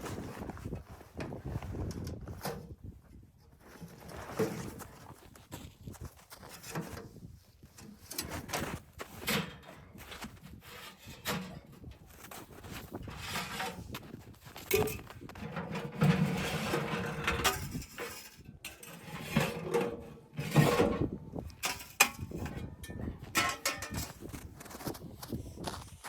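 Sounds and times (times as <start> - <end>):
rustling and scraping: 0.0 - 26.0
knocks and clinks: 21.6 - 24.1.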